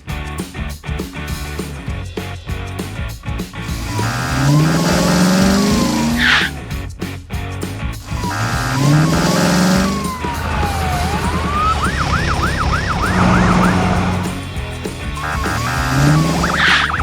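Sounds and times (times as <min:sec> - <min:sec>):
cartoon sliding tone: 0:03.8 - 0:06.6, 0:08.1 - 0:14.4, 0:15.2 - 0:17.0
yelping siren wail: 0:03.9 - 0:06.5, 0:08.2 - 0:14.4, 0:15.2 - 0:17.0
background music: 0:07.6 - 0:17.0.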